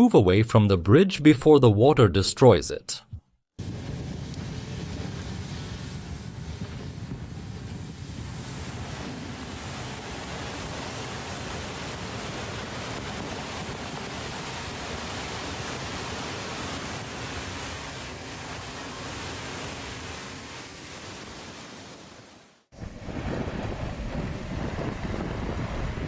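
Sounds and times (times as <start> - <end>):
floodwater rushing: 8.2 - 26.0.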